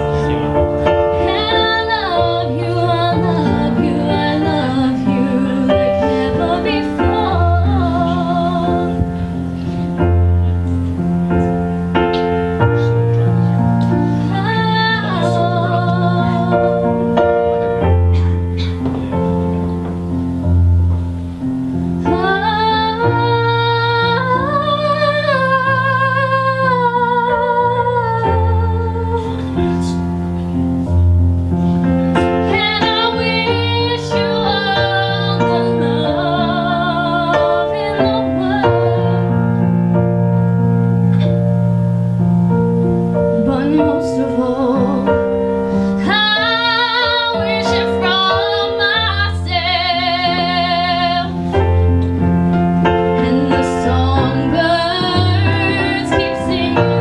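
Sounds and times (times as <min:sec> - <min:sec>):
piano chords: 0:00.0 - 0:57.0
woman singing a slow ballad: 0:00.8 - 0:10.6, 0:13.9 - 0:18.5, 0:22.0 - 0:30.5, 0:32.1 - 0:40.3, 0:43.1 - 0:52.1, 0:52.9 - 0:57.0.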